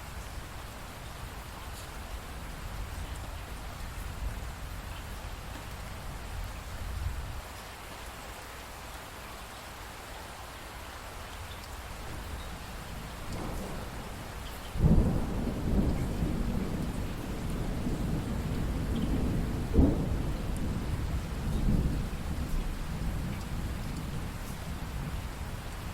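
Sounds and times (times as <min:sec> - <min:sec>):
steady rainfall: 0:00.0 - 0:25.9
thunder clap and rumble: 0:12.0 - 0:25.9.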